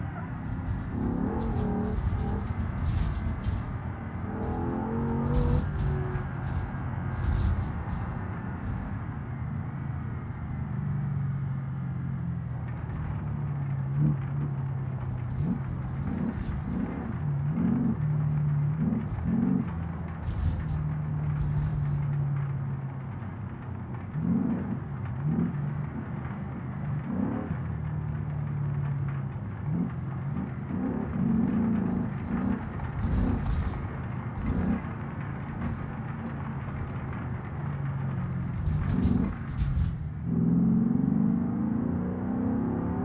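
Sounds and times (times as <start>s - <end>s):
car engine humming from inside cabin: 0.0s - 43.0s
brief rustles: 0.2s - 9.1s, 15.0s - 18.2s, 19.0s - 22.2s, 31.4s - 37.2s, 38.2s - 40.2s
thumps: 0.2s - 9.2s, 12.6s - 22.5s, 31.2s - 40.4s.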